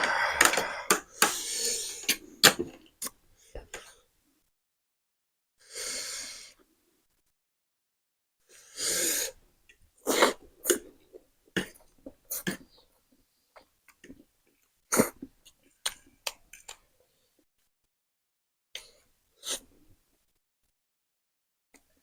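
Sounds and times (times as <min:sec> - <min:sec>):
sharp hissing breaths: 0:00.0 - 0:02.7, 0:05.6 - 0:06.6, 0:08.5 - 0:09.4.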